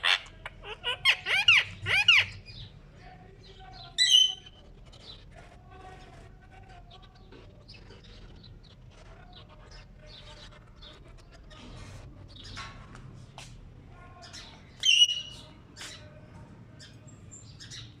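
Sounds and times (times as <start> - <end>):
parakeet squawk: 0.0 - 2.6
parakeet chattering: 0.0 - 2.8, 3.8 - 5.2, 14.3 - 16.0.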